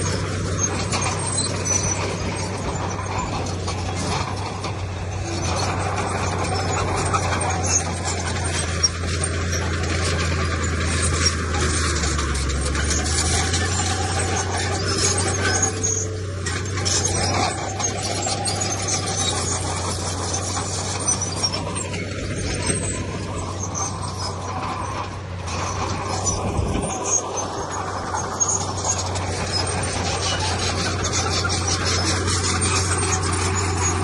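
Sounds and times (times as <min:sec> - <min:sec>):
diesel machinery droning: 0:00.0 - 0:34.0
squeals and metallic clanks: 0:00.0 - 0:34.0.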